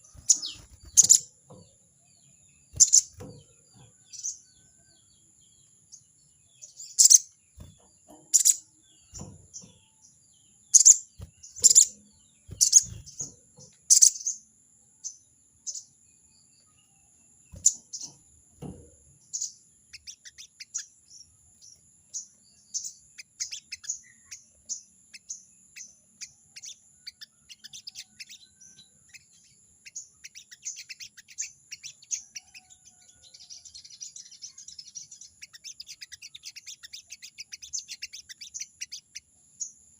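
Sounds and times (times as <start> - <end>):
bird harsh chatter calls: 0.0 - 1.5, 2.6 - 4.4, 6.7 - 10.0, 10.6 - 14.5, 19.3 - 21.0, 22.1 - 39.3.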